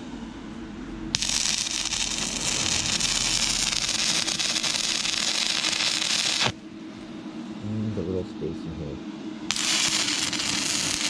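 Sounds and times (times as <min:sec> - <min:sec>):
welding arc crackling hiss: 0:01.1 - 0:06.6, 0:09.5 - 0:11.0.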